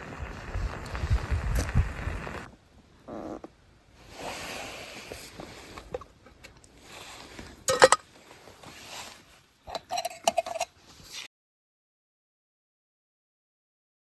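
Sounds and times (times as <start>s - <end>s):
metal cookware clinking: 7.7s - 8.0s, 9.7s - 10.8s.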